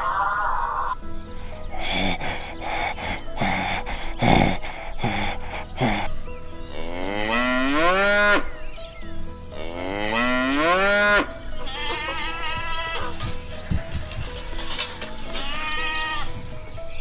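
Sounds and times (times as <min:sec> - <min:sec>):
cow mooing: 0:06.7 - 0:08.5, 0:09.6 - 0:13.1.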